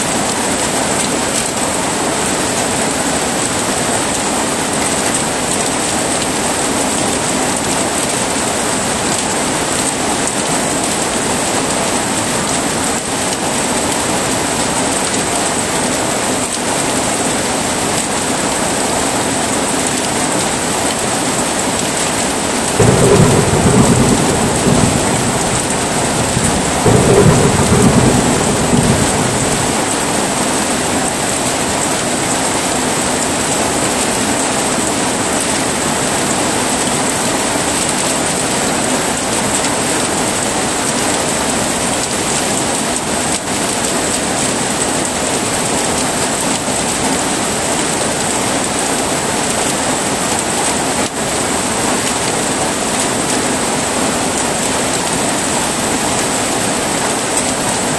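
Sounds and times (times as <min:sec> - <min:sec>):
heavy rain: 0:00.0 - 0:57.9
thunder rolling: 0:22.6 - 0:32.1.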